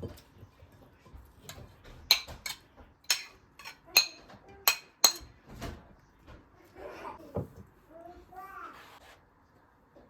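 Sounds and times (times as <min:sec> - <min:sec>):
dishes and glassware clinking: 0:01.4 - 0:05.4.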